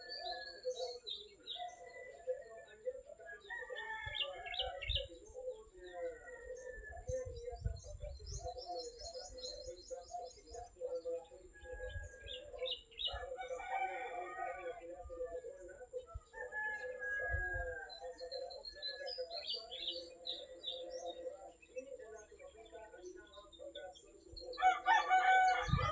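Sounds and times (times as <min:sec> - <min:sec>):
small birds chirping: 0:00.0 - 0:25.9
rooster crowing: 0:13.1 - 0:14.8, 0:24.6 - 0:25.9.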